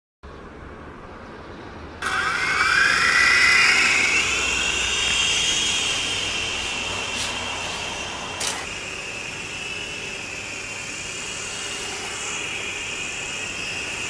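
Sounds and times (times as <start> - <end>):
small motors whining: 2.0 - 14.0
single click: 8.4 - 8.7.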